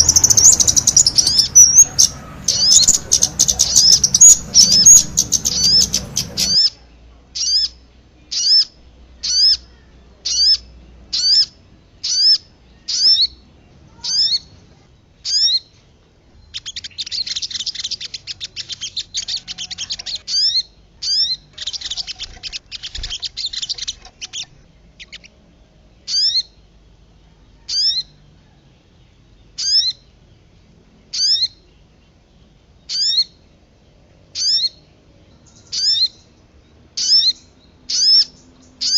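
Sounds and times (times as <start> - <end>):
bird chattering trill: 0.0 - 6.8, 7.4 - 14.6, 15.2 - 15.7, 16.4 - 25.4, 26.1 - 26.6, 27.7 - 28.2, 29.6 - 30.1, 32.9 - 33.4, 34.4 - 34.8, 35.4 - 36.3, 37.0 - 38.9
songbird whistled notes: 0.0 - 6.8, 16.4 - 25.3.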